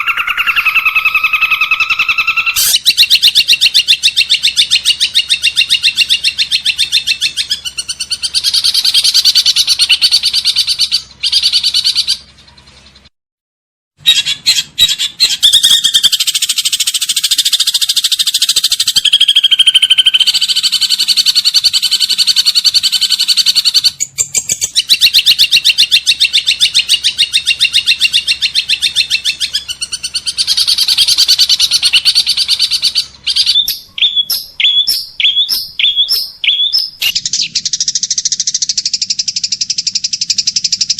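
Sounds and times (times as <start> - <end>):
bird short chirps: 0.0 - 3.5, 29.7 - 40.9
songbird fast trills: 0.0 - 12.3, 14.1 - 40.9.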